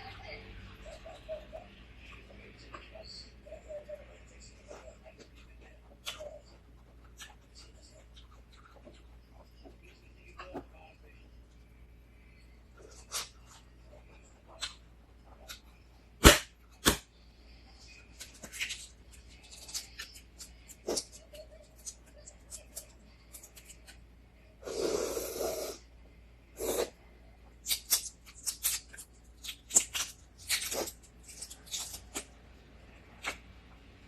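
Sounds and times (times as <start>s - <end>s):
wet chewing and crunching: 27.6s - 34.0s.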